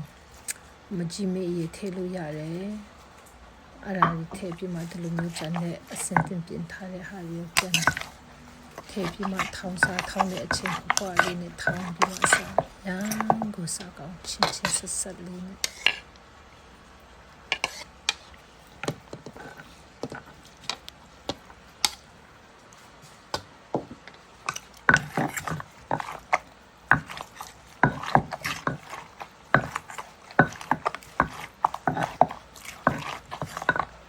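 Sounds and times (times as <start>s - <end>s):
utensils knocking and clacking: 4.0s - 6.4s, 7.5s - 8.2s, 8.8s - 13.5s, 24.5s - 34.0s.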